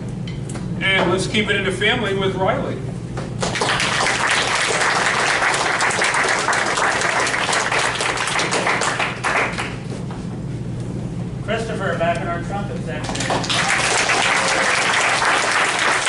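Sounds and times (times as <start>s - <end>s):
audience applauding: 3.4s - 9.9s, 13.0s - 16.0s.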